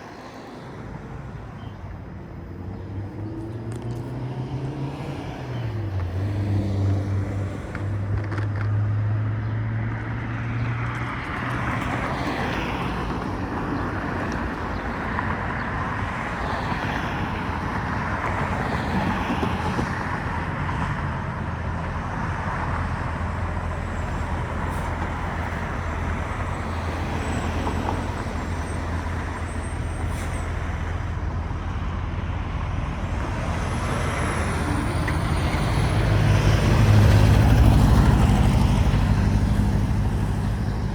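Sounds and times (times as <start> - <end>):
road traffic: 0.0 - 40.9
rushing road noise: 0.0 - 40.9.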